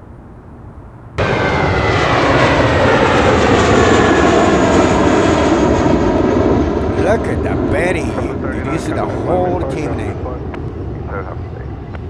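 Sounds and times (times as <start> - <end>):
jet engines at takeoff: 0.0 - 12.0.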